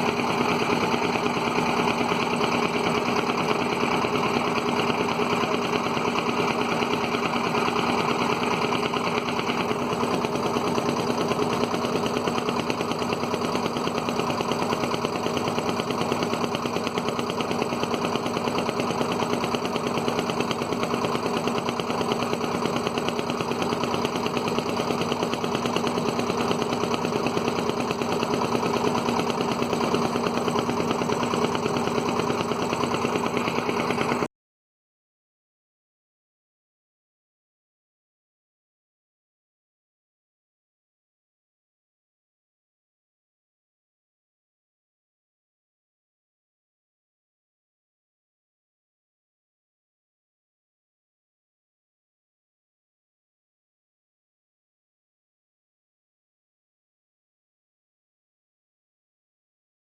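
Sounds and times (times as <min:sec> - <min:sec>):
boat engine knocking steadily: 0:00.0 - 0:34.3.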